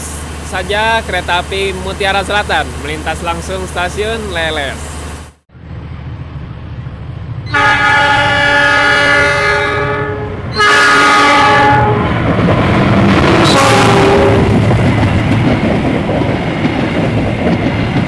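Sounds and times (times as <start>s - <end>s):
train rumbling and clattering past: 0.0s - 18.0s
diesel locomotive horn blasts: 7.5s - 12.2s, 13.4s - 14.6s.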